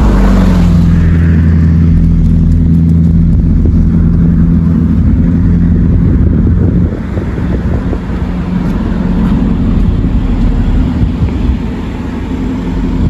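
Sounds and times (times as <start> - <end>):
constant hum: 0.0 - 13.0
vehicle engine and road rumble: 0.0 - 13.0.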